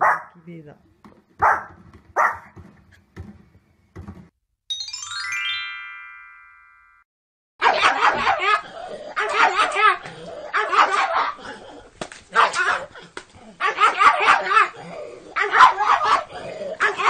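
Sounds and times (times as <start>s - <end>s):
pug barking and yipping rapidly: 0.0s - 0.3s, 1.4s - 2.6s, 7.6s - 11.6s, 12.3s - 13.0s, 13.6s - 17.0s
dog barking: 0.0s - 0.4s, 1.4s - 2.6s, 7.6s - 11.4s, 12.3s - 13.0s, 13.6s - 17.0s
small knocks: 1.0s - 4.4s
chiming jingle: 4.7s - 7.0s.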